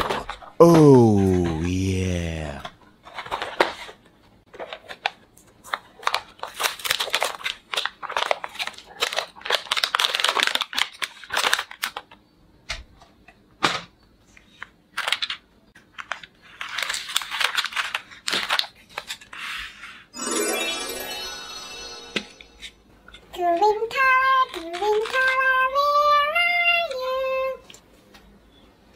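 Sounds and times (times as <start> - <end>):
plastic packaging crinkling: 6.0 - 12.0, 16.6 - 19.2.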